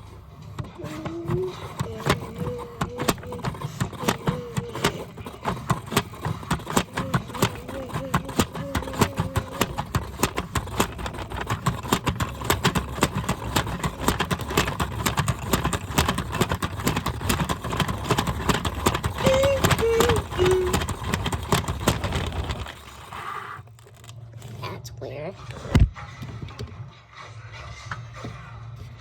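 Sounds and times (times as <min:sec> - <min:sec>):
rattles and knocks: 0:00.4 - 0:23.2
washing machine drum rumbling: 0:00.7 - 0:22.6.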